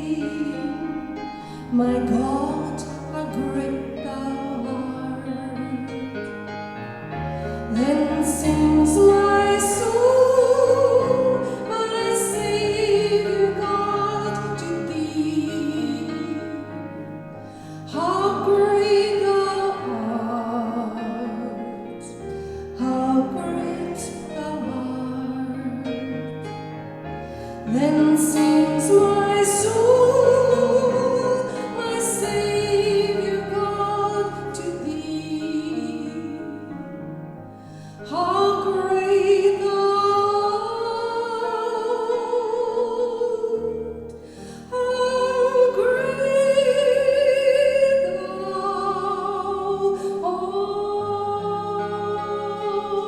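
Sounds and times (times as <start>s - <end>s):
keyboard accompaniment: 0.0s - 53.0s
person singing hymn operatically: 7.7s - 16.9s, 27.7s - 36.7s, 44.7s - 53.0s.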